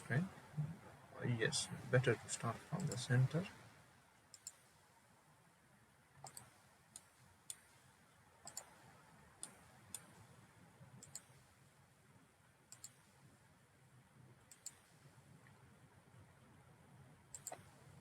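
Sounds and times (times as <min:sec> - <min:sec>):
computer mouse clicking: 0:02.7 - 0:03.4, 0:04.3 - 0:04.8, 0:06.2 - 0:07.8, 0:08.4 - 0:08.8, 0:09.4 - 0:10.2, 0:11.0 - 0:11.5, 0:12.7 - 0:13.2, 0:14.5 - 0:15.0, 0:17.3 - 0:17.9.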